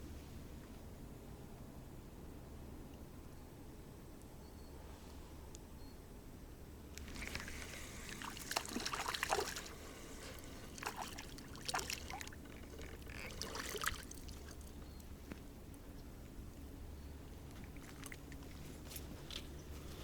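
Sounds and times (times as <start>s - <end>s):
water splashing and dribbling: 7.0s - 14.8s, 17.5s - 18.6s.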